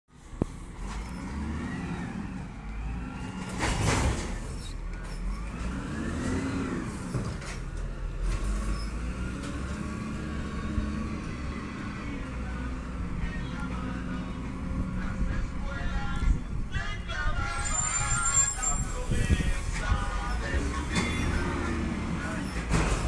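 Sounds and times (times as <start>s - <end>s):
garbage truck engine revving: 0.6s - 13.2s, 17.7s - 23.0s.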